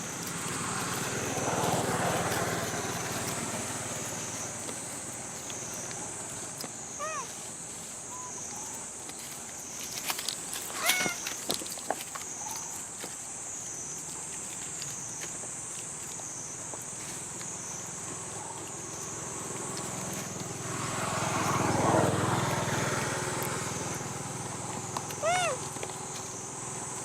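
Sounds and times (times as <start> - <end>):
vehicle engine passing: 0.0 - 7.8, 17.6 - 27.0
insects droning: 0.0 - 27.0.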